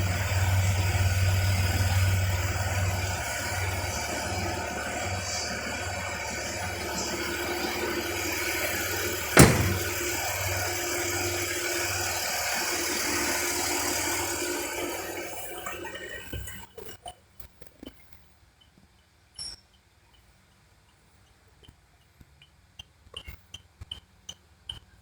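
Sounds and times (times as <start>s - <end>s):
sharp knock: 9.4s - 10.0s.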